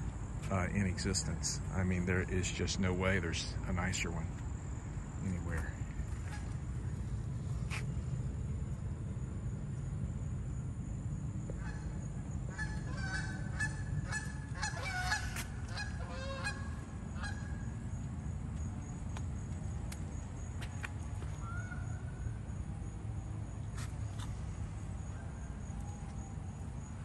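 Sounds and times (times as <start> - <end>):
steady low rumble: 0.0 - 27.0
birds calling: 11.5 - 18.0.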